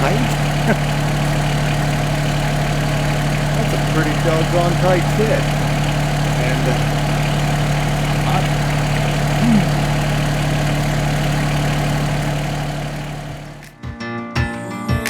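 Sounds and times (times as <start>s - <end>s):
engine idling: 0.0s - 13.8s.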